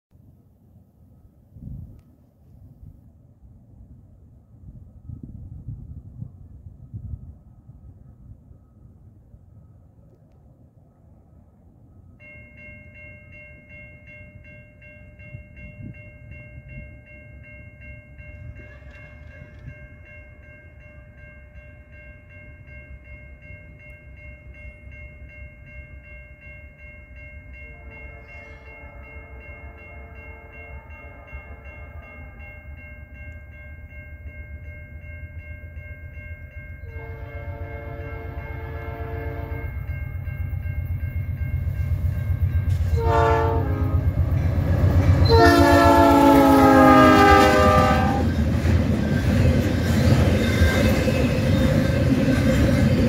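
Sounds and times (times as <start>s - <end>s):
freight train rumble: 0.2s - 53.0s
level-crossing warning bell: 11.9s - 53.0s
locomotive air horn: 27.7s - 32.1s, 36.8s - 39.8s, 42.9s - 44.2s, 45.2s - 48.3s.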